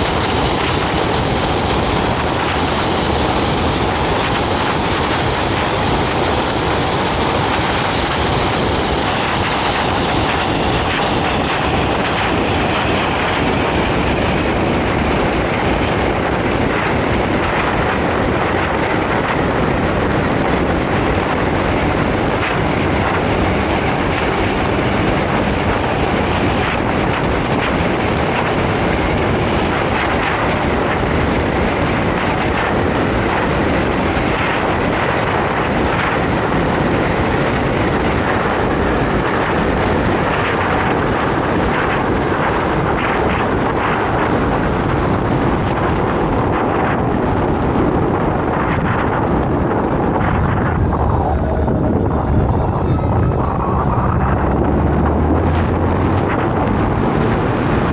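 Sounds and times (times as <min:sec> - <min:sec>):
road noise: 0:00.0 - 0:57.9
wind buffeting microphone: 0:00.0 - 0:57.9
motorcycle engine: 0:35.6 - 0:57.9.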